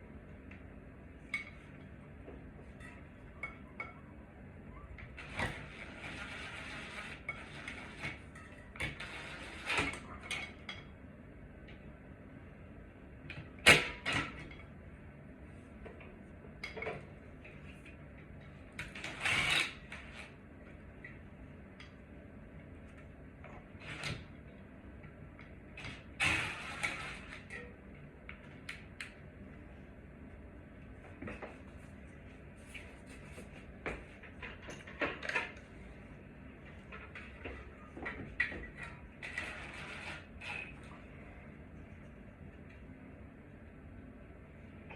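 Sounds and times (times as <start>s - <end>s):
low steady hum: 0.0s - 44.9s
tools knocking and scraping: 33.2s - 35.7s.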